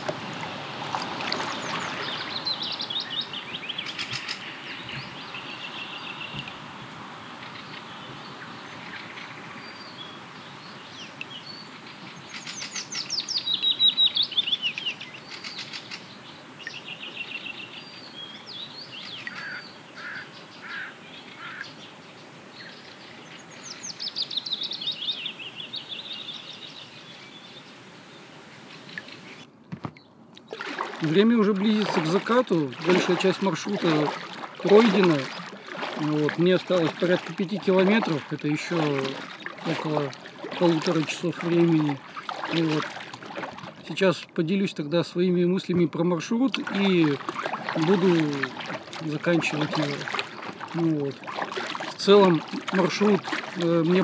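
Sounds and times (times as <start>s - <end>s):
songbirds singing and calling: 0.0s - 54.0s.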